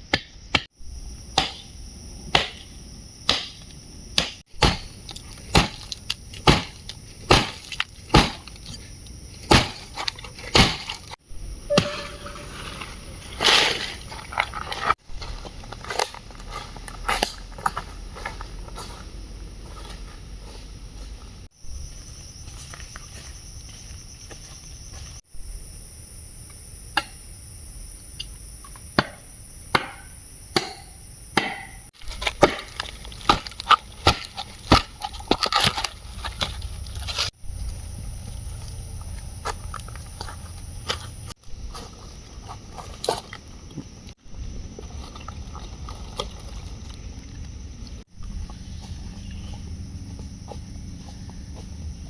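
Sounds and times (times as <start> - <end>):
high-pitched insect drone: 11.2 - 14.4.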